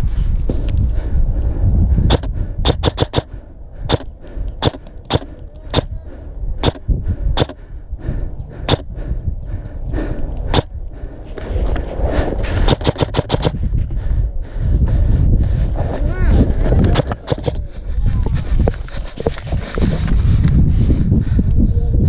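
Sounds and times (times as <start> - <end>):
low wind rumble on microphone: 0.0 - 22.0
airsoft gun shots: 2.1 - 3.3, 3.9 - 5.9, 6.6 - 6.8, 7.4 - 7.6, 12.7 - 13.5.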